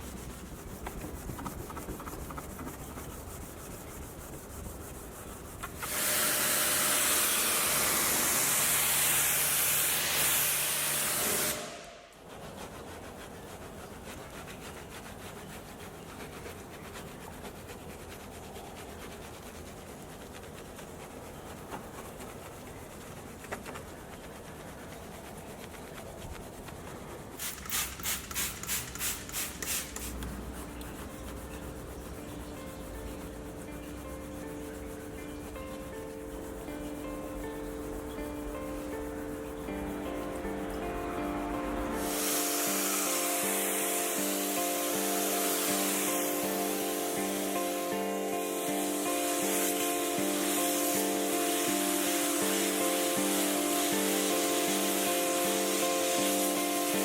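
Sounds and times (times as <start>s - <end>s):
brushing on car surfaces: 0.0s - 57.0s
loud hiss: 5.8s - 12.2s, 27.4s - 30.5s, 37.0s - 57.0s
short hissing squirts: 27.4s - 30.8s, 42.0s - 57.0s.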